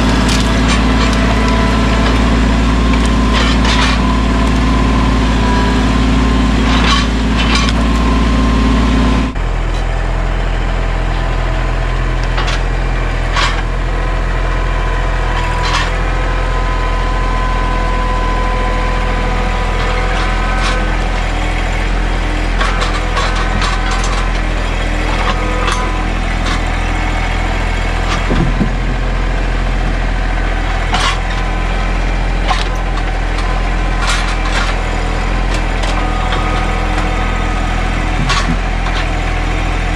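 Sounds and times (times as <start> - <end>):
wood and brush breaking: 0.0 - 4.6
tractor diesel engine running: 0.0 - 39.9.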